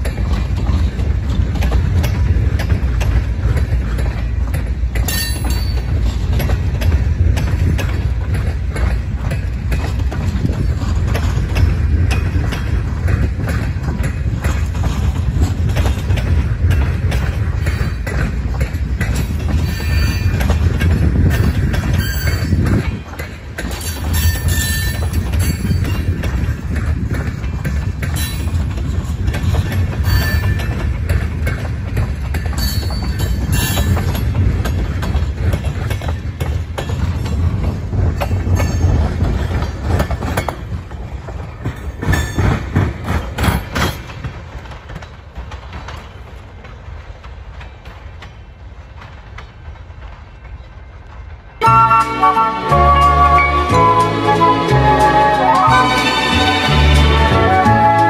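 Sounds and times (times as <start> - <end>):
train wheels rumbling on rails: 0.0 - 58.0
wheels clicking over rail joints: 0.0 - 58.0
wheel squeals: 19.1 - 23.0, 23.6 - 26.4, 28.1 - 30.8.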